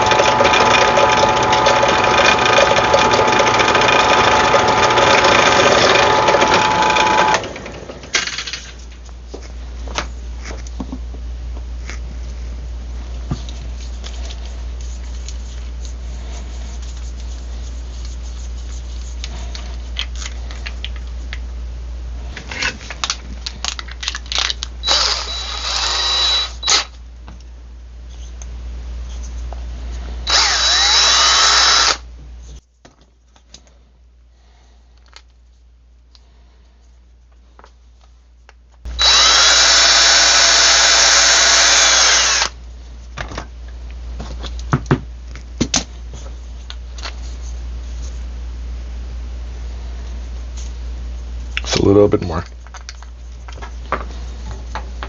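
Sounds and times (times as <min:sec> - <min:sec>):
electric drill running: 0:00.0 - 0:08.4, 0:24.8 - 0:26.9, 0:30.2 - 0:32.0, 0:38.9 - 0:42.6.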